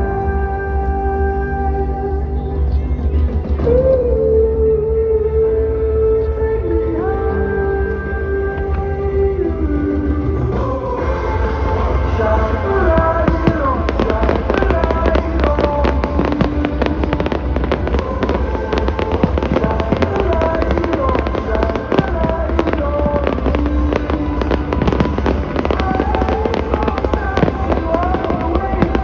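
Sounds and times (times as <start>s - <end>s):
loud melodic music: 0.0s - 29.0s
fireworks bangs and crackles: 9.6s - 29.0s.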